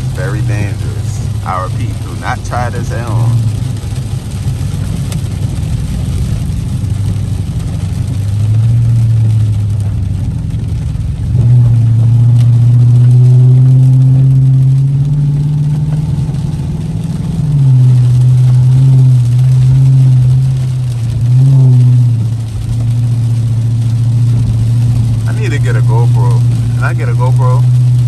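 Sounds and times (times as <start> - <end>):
car engine revving hard: 0.0 - 4.8, 10.7 - 28.0.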